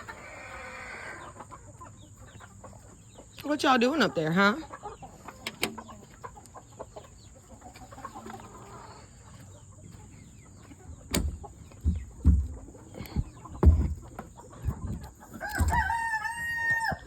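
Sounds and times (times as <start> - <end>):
chickens clucking: 0.0 - 17.0
low thumps: 10.9 - 15.9.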